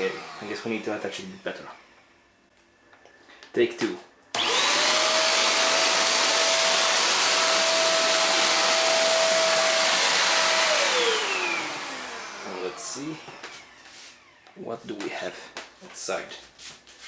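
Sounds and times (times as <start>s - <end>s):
hand vacuum cleaner running: 0.0s - 2.4s, 4.3s - 15.5s.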